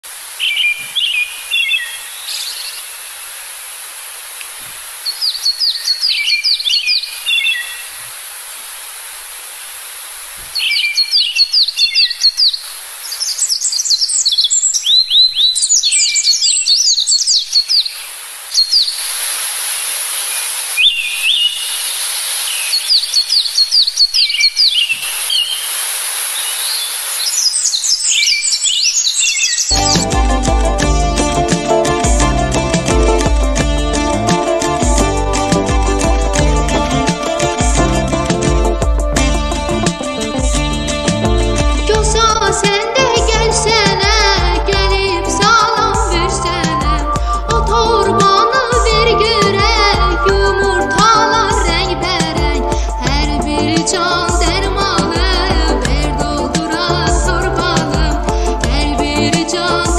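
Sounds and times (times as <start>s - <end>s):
steady background hiss: 0.0s - 59.9s
songbirds chirping: 0.4s - 3.6s, 4.4s - 8.2s, 10.4s - 19.1s, 20.1s - 30.2s.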